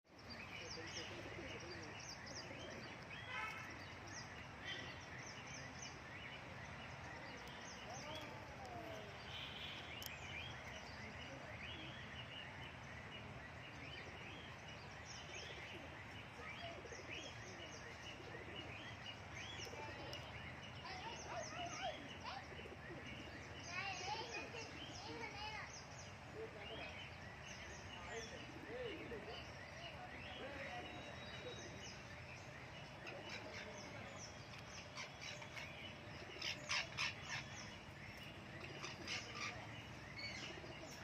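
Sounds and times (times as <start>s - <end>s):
birds chirping: 0.1s - 41.0s.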